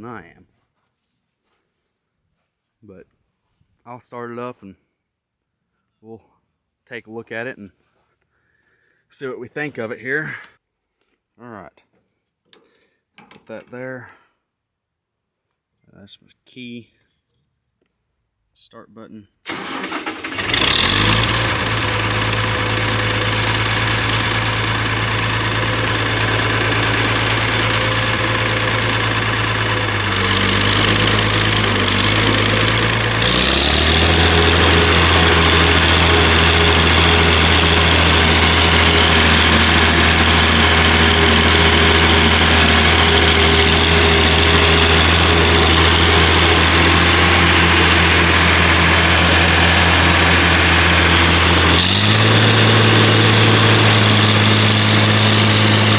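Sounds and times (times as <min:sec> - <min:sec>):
tractor engine idling: 0:19.5 - 0:55.9.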